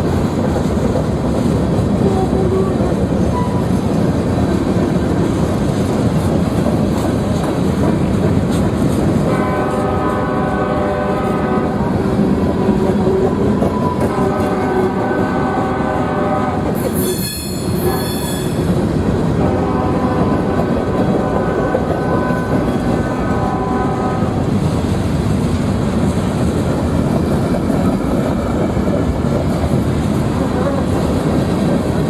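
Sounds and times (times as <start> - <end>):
train rumbling past: 0.0 - 32.0
locomotive air horn blasts: 2.0 - 3.7, 9.2 - 18.6, 19.4 - 24.4.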